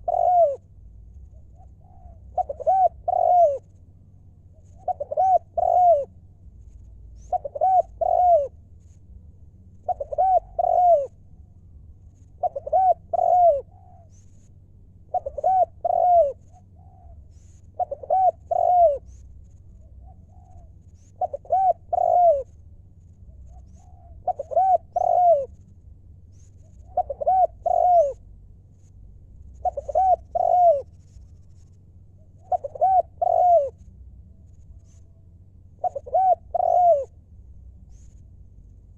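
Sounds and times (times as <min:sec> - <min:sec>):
dove cooing: 0:00.0 - 0:03.8, 0:04.6 - 0:06.2, 0:07.2 - 0:08.7, 0:09.8 - 0:11.2, 0:12.2 - 0:14.1, 0:15.0 - 0:19.2, 0:19.8 - 0:22.6, 0:23.4 - 0:25.6, 0:26.7 - 0:28.3, 0:29.5 - 0:31.2, 0:32.3 - 0:33.9, 0:35.8 - 0:37.2.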